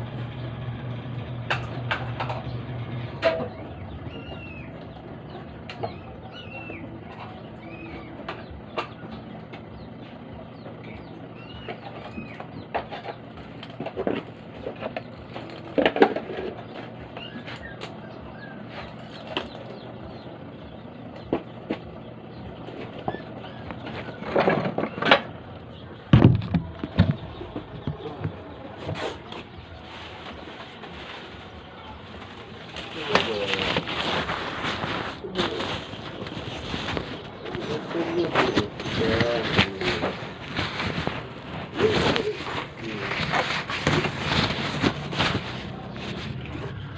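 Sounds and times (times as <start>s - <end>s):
steady low hum: 0.0s - 46.9s
small birds chirping: 0.1s - 46.9s.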